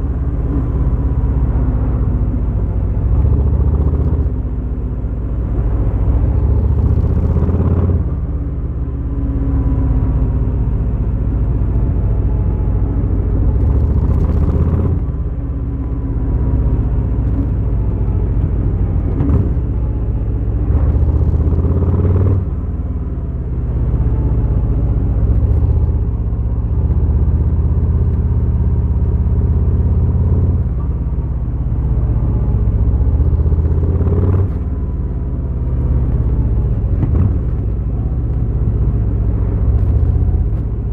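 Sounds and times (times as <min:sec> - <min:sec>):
motorcycle engine rumbling: 0:11.7 - 0:40.9.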